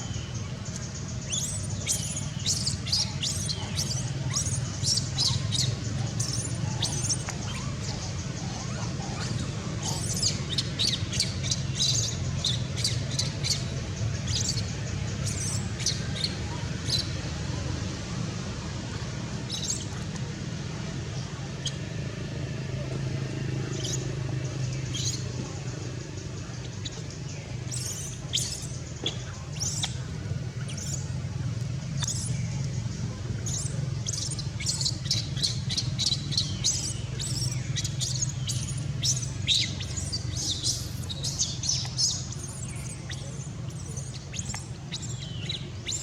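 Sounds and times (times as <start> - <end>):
steady low hum: 0.0 - 46.0
baby monkey squeaking: 1.3 - 7.8, 8.5 - 13.7, 27.7 - 30.0, 30.6 - 31.0, 32.0 - 32.4, 33.4 - 46.0.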